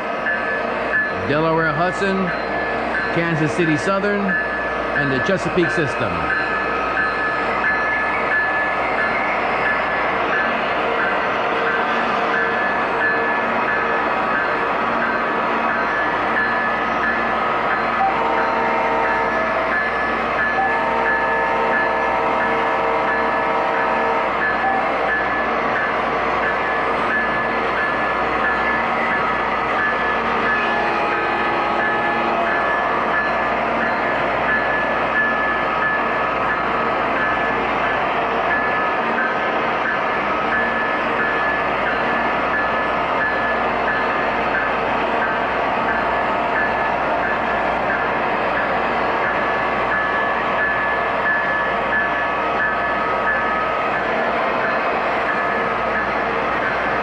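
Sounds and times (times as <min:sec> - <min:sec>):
model trains running rumble: 0:00.0 - 0:57.0
train horn tone: 0:18.0 - 0:19.8, 0:20.4 - 0:25.0, 0:30.5 - 0:32.5.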